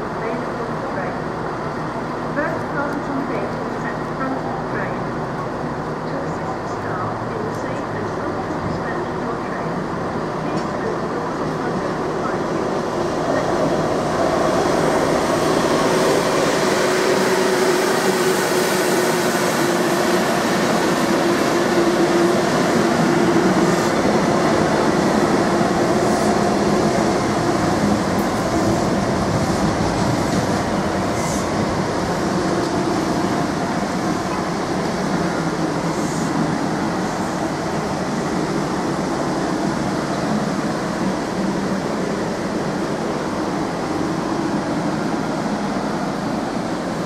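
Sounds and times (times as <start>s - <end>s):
rumble of wheels on rails: 0.0s - 47.0s.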